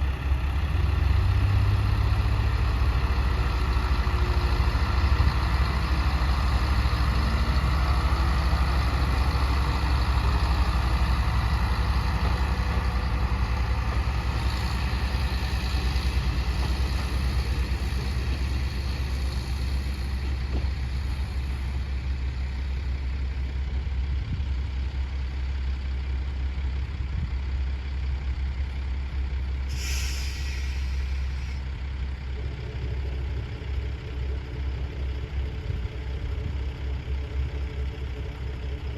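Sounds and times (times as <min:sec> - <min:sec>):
railcar engine drone: 0:00.0 - 0:38.9
brake air hiss: 0:29.7 - 0:31.8.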